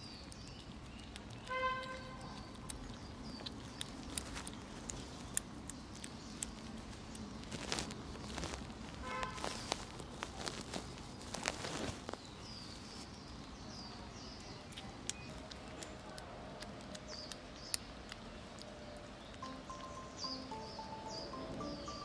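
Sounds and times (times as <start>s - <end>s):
kittens eating wet clicks: 0.0s - 21.6s
high falling chirps: 19.4s - 22.0s.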